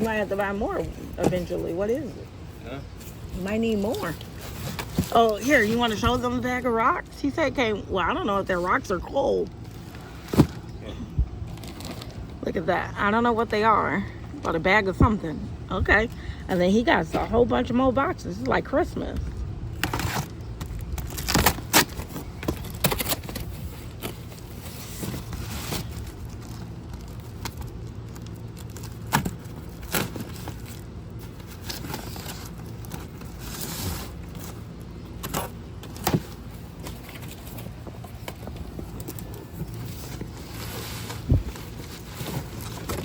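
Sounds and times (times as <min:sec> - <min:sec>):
cardboard packaging rustling: 0:00.0 - 0:06.4, 0:11.4 - 0:12.4, 0:19.7 - 0:43.0.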